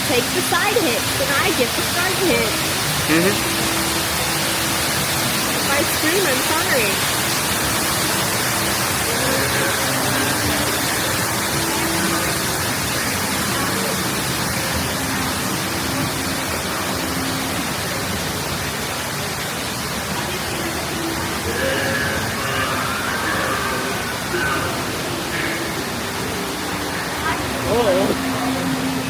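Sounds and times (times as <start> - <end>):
water rushing in flume: 0.0 - 29.0
faint pitched sounds: 27.0 - 28.3.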